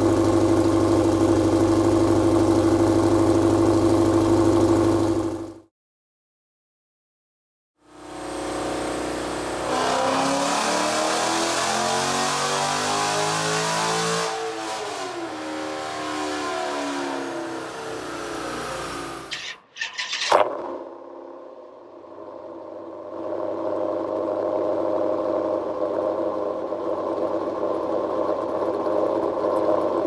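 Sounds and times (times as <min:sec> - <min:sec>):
car engine revving and idling: 0:00.0 - 0:05.6, 0:07.9 - 0:19.6
sharp clatters: 0:19.2 - 0:20.7.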